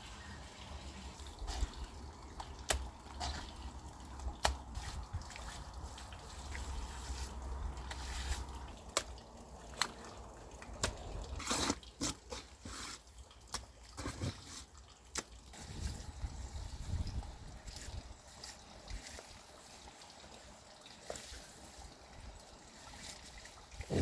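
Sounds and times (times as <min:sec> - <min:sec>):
wet clay slaps and squelches: 0:02.4 - 0:03.6, 0:04.2 - 0:06.8, 0:07.8 - 0:11.1.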